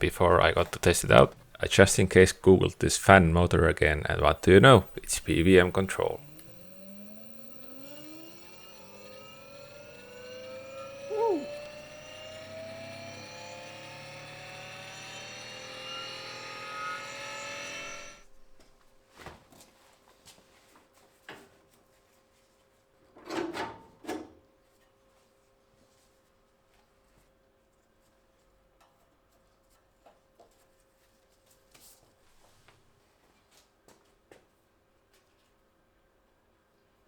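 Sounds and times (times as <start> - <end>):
electric radiator fan whine: 0.0 - 18.6.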